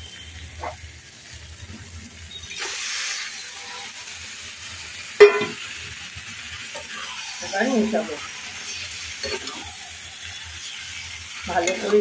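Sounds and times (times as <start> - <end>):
chicken sizzling in masala: 0.0 - 12.0.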